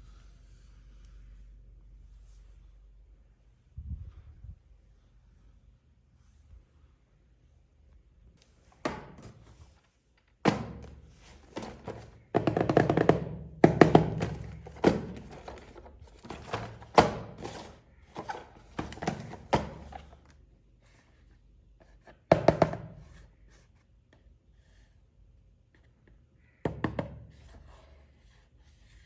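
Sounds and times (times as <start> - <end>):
boxed toys knocking: 8.8 - 9.4, 10.4 - 20.3, 22.3 - 23.2.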